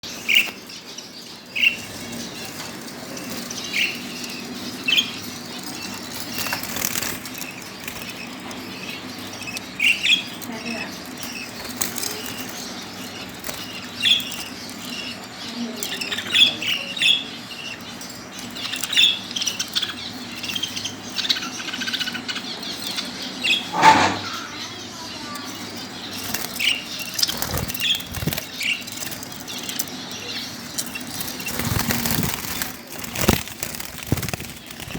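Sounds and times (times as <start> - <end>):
lovebirds chirping: 0.0 - 34.9
wing flapping: 26.0 - 34.9.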